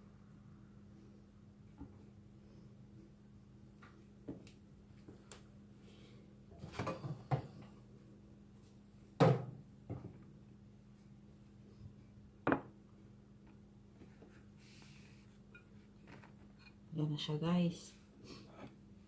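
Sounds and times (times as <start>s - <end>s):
kitchen items knocking and clattering: 6.6s - 7.6s, 9.2s - 10.2s.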